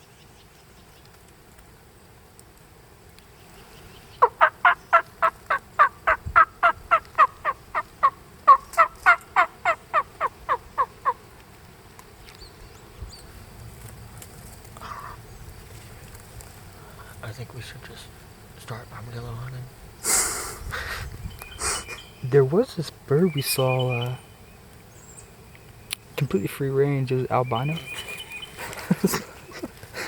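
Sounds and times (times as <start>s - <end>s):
turkey yelping: 4.2s - 11.2s.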